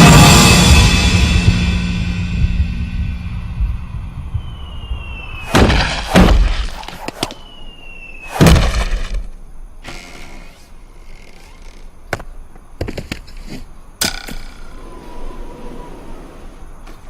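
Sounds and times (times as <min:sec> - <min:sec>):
loud crashing impacts: 0:00.0 - 0:07.2, 0:08.2 - 0:09.3
thin falling whistle: 0:04.3 - 0:09.3.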